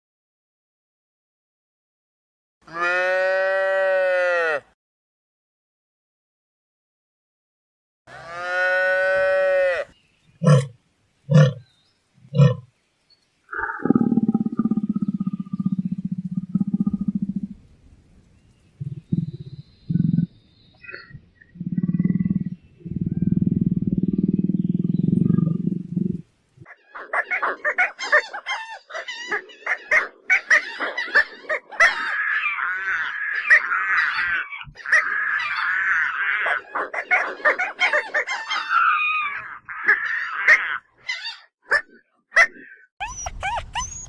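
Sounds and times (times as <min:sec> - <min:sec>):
large animal growling: 0:13.6 - 0:17.6, 0:20.9 - 0:26.2
chattering squawking animal calls: 0:26.7 - 0:44.0.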